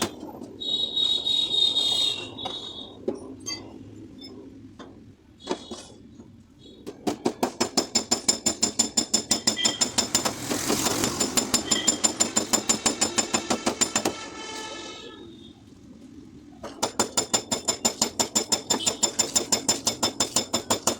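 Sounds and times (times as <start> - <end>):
hammer tapping on sheet metal: 7.0 - 14.2.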